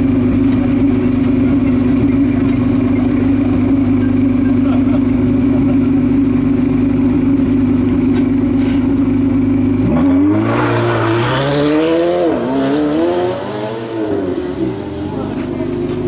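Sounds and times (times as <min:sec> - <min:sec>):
race car engine accelerating: 0:09.7 - 0:16.0.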